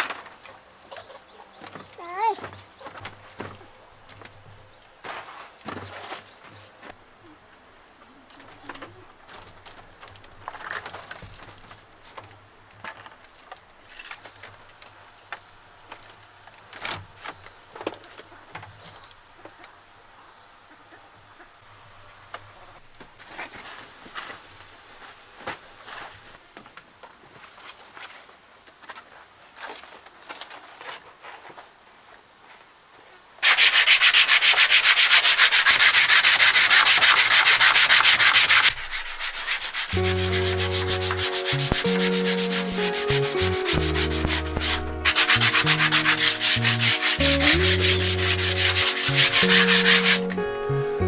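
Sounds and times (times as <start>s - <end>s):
rapid scraping strokes: 33.4s - 50.3s
low stepped drone: 40.0s - 51.0s.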